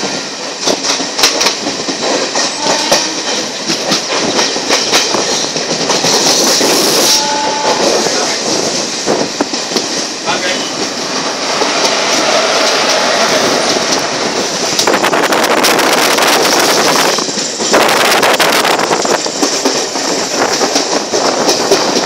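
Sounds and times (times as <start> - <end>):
train wheels and wind rushing: 0.0 - 22.0
wheels clattering over rail joints: 0.0 - 22.0.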